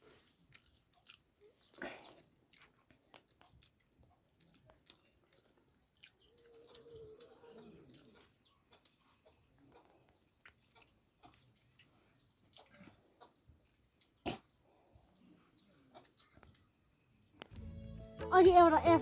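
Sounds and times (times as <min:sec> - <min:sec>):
person chewing with mouth clicks: 0:00.0 - 0:09.2, 0:10.3 - 0:12.8
small birds chirping: 0:00.0 - 0:19.0.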